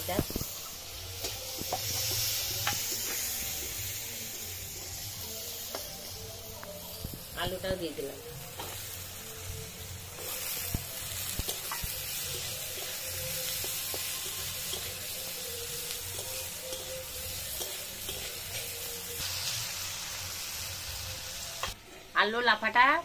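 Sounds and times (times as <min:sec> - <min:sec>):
vegetables sizzling in hot oil: 0:00.0 - 0:23.0
metal spatula scraping wok: 0:10.1 - 0:19.8.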